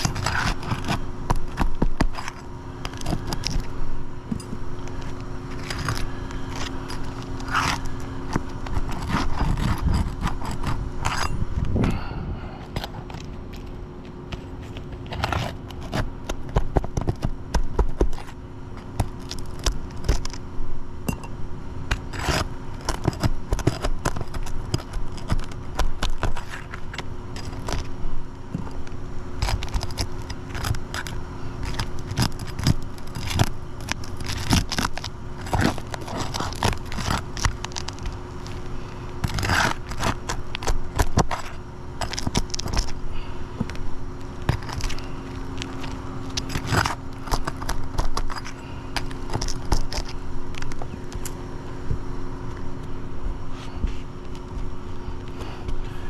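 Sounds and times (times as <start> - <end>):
scraping on gritty roof shingles: 0.0 - 3.7, 4.8 - 13.7, 21.9 - 28.0, 28.6 - 51.4
steady low hum: 0.0 - 56.0.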